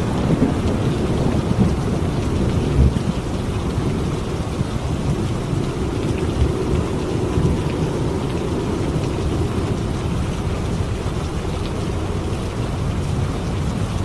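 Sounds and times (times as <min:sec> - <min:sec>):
distant thunder rumbling: 0:00.0 - 0:14.0
rain falling: 0:00.0 - 0:14.0.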